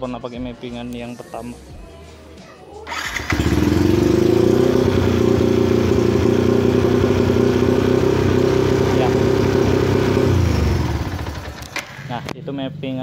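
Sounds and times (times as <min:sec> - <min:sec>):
motorcycle engine idling: 0:02.9 - 0:12.3
motorcycle engine starting: 0:02.9 - 0:12.4.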